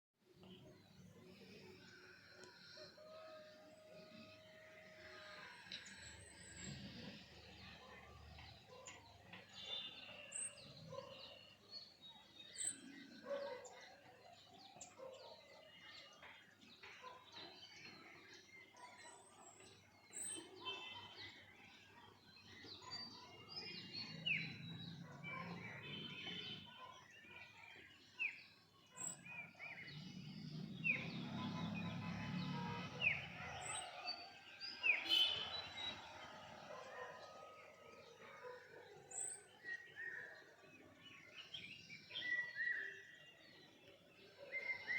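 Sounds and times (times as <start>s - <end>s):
birds chirping: 21.8s - 44.9s.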